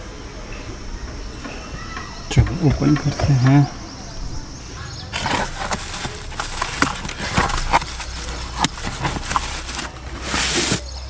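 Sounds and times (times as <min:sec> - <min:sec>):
plastic rustling: 0:04.7 - 0:11.0
bubble wrap crinkling: 0:05.1 - 0:11.0
cardboard box being handled: 0:05.1 - 0:11.0.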